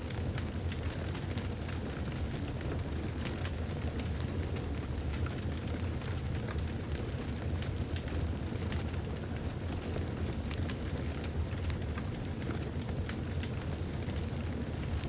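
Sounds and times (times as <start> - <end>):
burning wood crackling and popping: 0.1 - 15.0
fireplace fire rumbling: 6.6 - 15.0.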